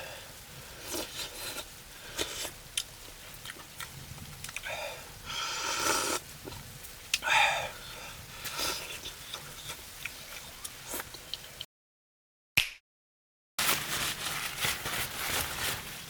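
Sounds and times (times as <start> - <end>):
slurping sounds: 5.5 - 6.6, 8.4 - 11.2.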